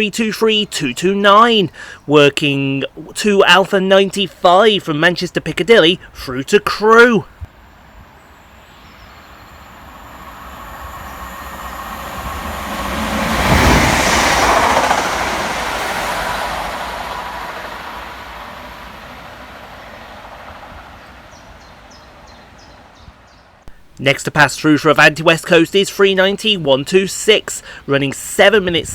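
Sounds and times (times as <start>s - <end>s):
train passing at speed: 7.0s - 23.6s.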